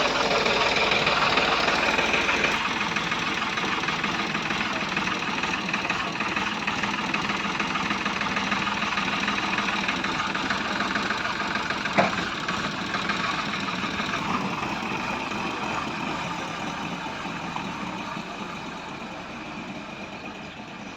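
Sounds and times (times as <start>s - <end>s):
heavy vehicle engine running: 0.0s - 20.9s.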